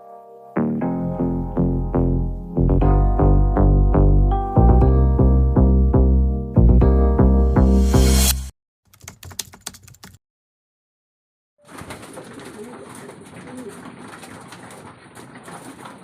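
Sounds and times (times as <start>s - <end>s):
electronic music: 0.0s - 8.5s.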